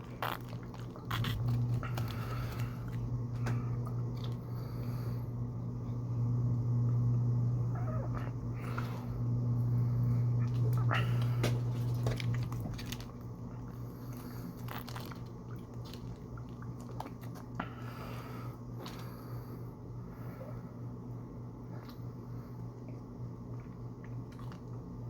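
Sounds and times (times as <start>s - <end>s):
chewing crunchy food: 0.0s - 4.9s, 10.4s - 18.1s, 22.8s - 25.0s
steady low hum: 0.0s - 25.0s.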